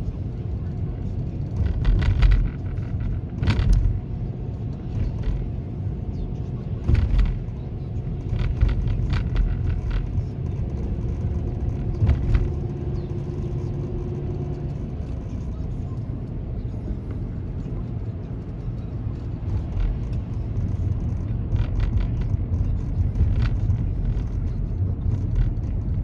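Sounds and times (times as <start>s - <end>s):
car driving rumble: 0.0s - 26.0s.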